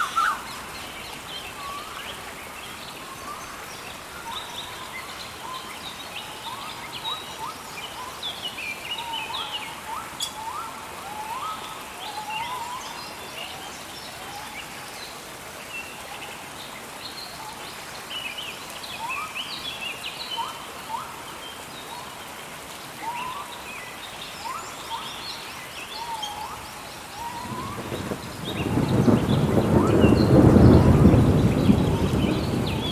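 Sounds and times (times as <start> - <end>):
steady rainfall: 0.0 - 32.9
birds twittering: 24.4 - 32.9.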